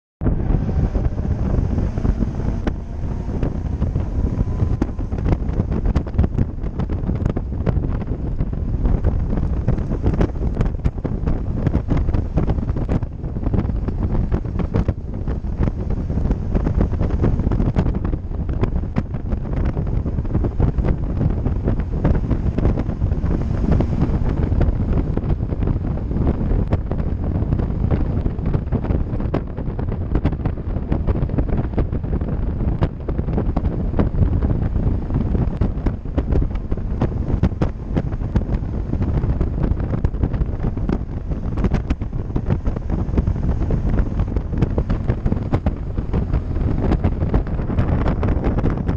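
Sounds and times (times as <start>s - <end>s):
wind buffeting microphone: 0.2s - 48.9s.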